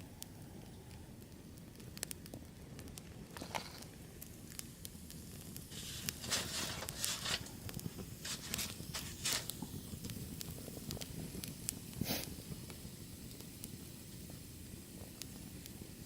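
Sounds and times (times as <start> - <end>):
wood fire crackling and popping: 0.0 - 16.0
loud rustling bursts: 5.7 - 7.6.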